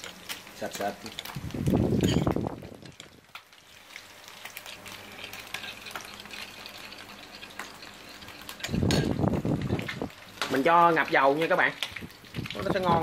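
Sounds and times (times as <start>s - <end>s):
fish sizzling in oil: 0.0s - 13.0s
metal spoon clinking in bowl: 2.0s - 2.4s, 8.4s - 9.2s.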